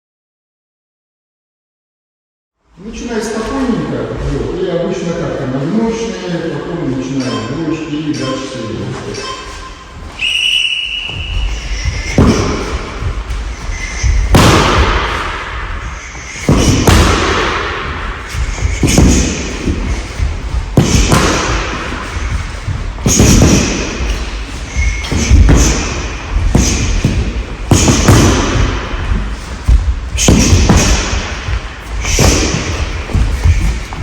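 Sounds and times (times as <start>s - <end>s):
punches and kicks thudding on pads: 12.1s - 13.4s, 14.1s - 15.5s, 16.4s - 24.3s, 25.0s - 34.0s.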